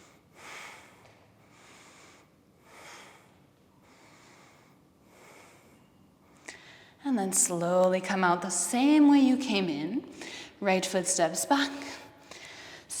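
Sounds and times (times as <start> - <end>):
woman breathing softly: 0.0 - 7.0, 10.2 - 10.6, 11.8 - 12.9.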